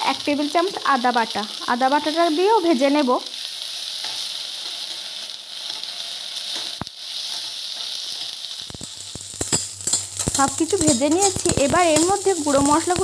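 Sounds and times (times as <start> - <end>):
food sizzling in hot oil: 0.0 - 13.0
spatula stirring and scraping: 6.5 - 13.0.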